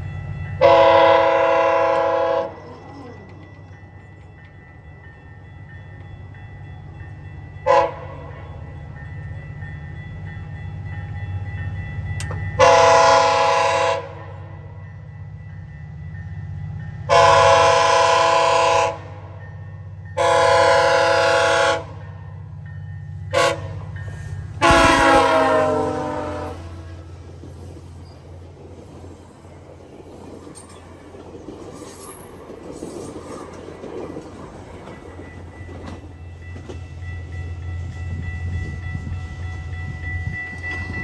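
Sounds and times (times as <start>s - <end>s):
train rumble: 0.0s - 41.0s
train horn blasts: 0.5s - 2.6s, 7.6s - 8.3s, 12.6s - 14.4s, 17.1s - 19.3s, 20.2s - 22.0s, 23.2s - 23.9s, 24.5s - 27.1s.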